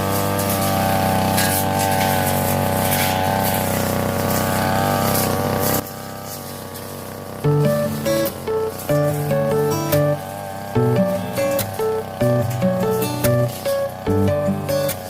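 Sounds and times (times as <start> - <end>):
brush cutter engine droning: 0.0 - 15.0.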